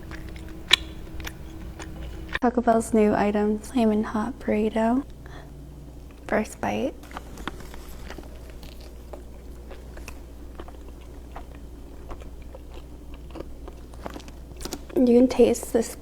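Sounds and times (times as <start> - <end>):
person chewing crunchy food: 0.0 - 2.4, 7.0 - 15.0.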